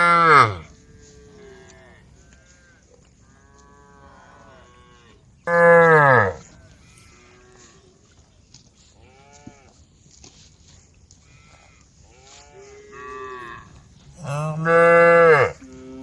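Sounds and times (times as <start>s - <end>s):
cow mooing loudly: 0.0s - 2.0s, 3.8s - 6.4s, 12.2s - 16.0s
faint moos of other cows: 0.0s - 8.1s, 9.0s - 9.8s, 11.2s - 16.0s.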